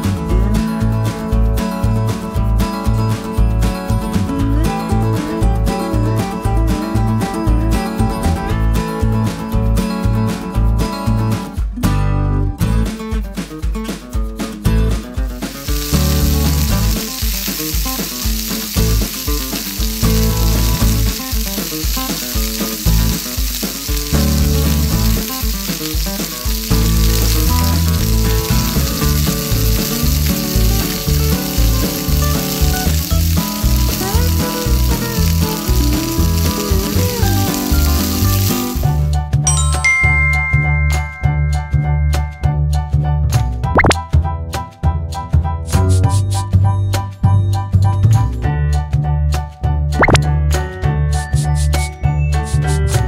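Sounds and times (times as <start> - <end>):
background music with beat: 0.0 - 53.0
hot oil sizzling: 15.0 - 41.8.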